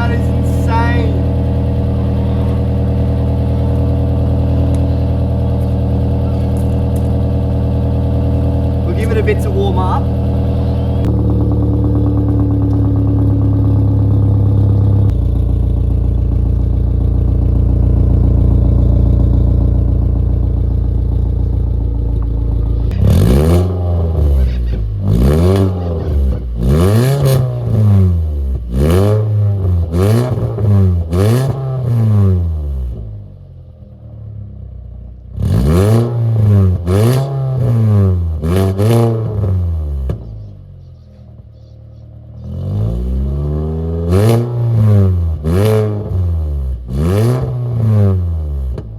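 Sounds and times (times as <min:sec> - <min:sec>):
car engine idling: 0:00.0 - 0:48.9
engine revving in blips: 0:17.6 - 0:33.2, 0:35.3 - 0:48.9.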